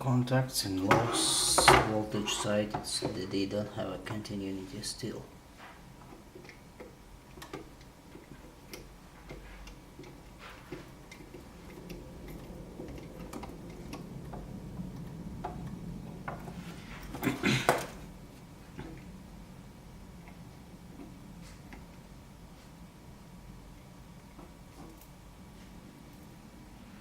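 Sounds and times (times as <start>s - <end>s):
low hum: 0.6s - 27.0s
tools clicking and tapping: 6.0s - 18.0s.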